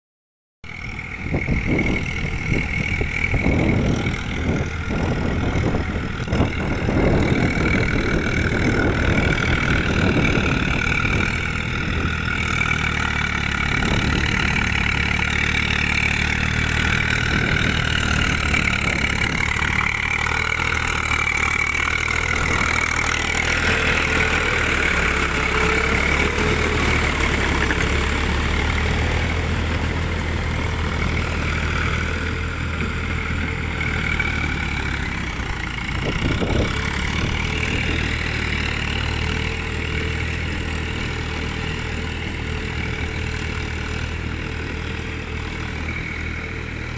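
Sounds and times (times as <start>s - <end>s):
tractor diesel engine running: 0.6s - 46.9s.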